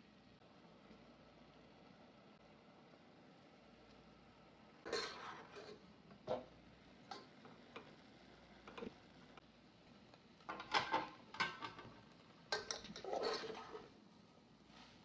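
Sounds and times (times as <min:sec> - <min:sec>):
kitchen utensils and dishes clinking: 0:04.9 - 0:06.5, 0:10.5 - 0:14.0.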